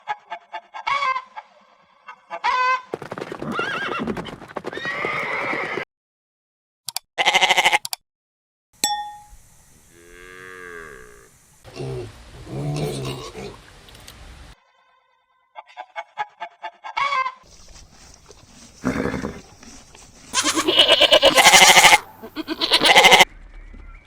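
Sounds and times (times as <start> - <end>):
farm animals calling: 17.5 - 23.2.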